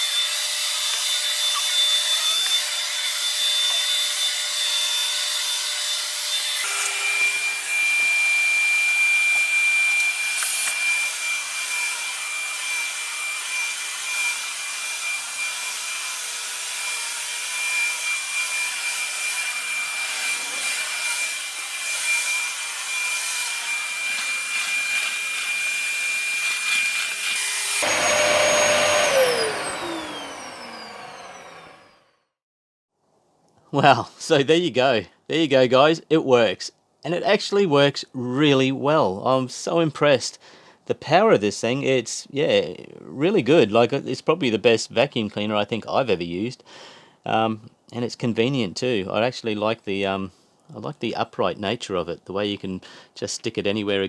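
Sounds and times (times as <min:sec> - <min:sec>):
motor winding down: 0:06.6 - 0:11.2, 0:26.8 - 0:32.1
vacuum cleaner running: 0:06.6 - 0:32.1.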